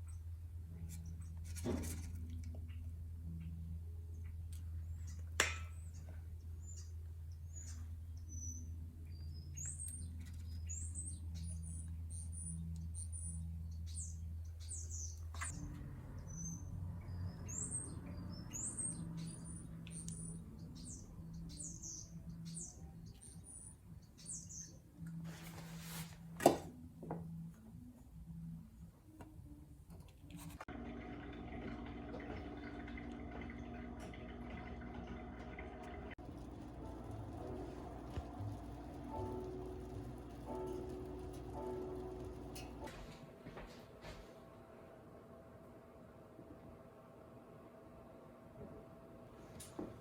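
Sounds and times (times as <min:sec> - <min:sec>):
low steady hum: 0:00.0 - 0:25.9, 0:30.7 - 0:50.0
small birds chirping: 0:04.8 - 0:25.0, 0:36.2 - 0:43.0.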